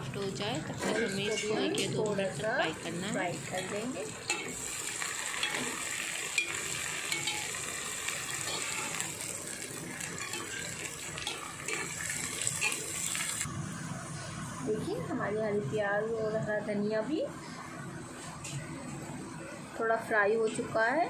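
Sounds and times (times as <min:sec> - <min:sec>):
onions sizzling in hot oil: 0:00.0 - 0:15.8.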